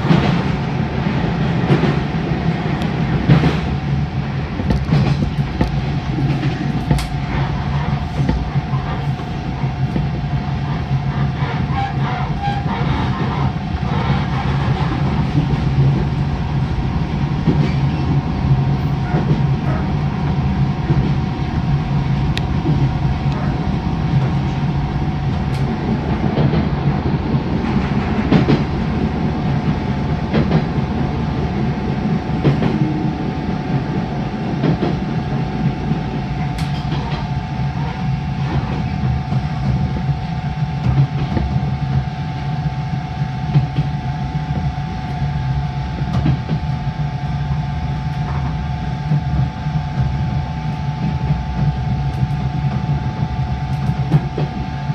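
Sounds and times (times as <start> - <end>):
rail-joint clicks: 0.0 - 0.6, 1.2 - 4.0, 4.6 - 16.2, 17.4 - 19.9, 22.3 - 31.1, 32.4 - 33.0, 34.6 - 42.0, 46.0 - 46.8, 48.1 - 54.7
electric train rumble and hum: 0.0 - 54.9.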